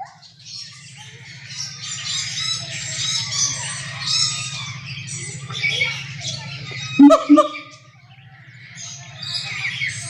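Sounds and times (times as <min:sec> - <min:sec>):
gibbons shrieking: 0:02.5 - 0:07.8
steady low hum: 0:03.6 - 0:09.2.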